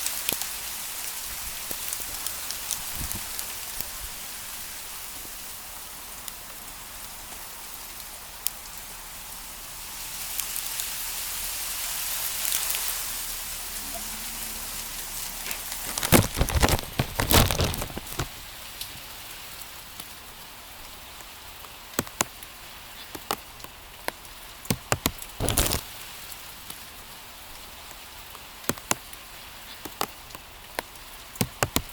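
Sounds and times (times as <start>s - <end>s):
rain and wind hiss: 0.0s - 16.2s
hailstones hitting hard surfaces: 15.5s - 18.4s.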